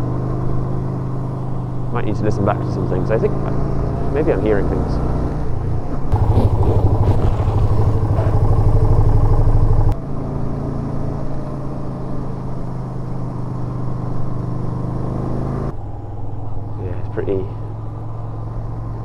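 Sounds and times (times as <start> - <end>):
motorcycle engine running: 6.1 - 10.0.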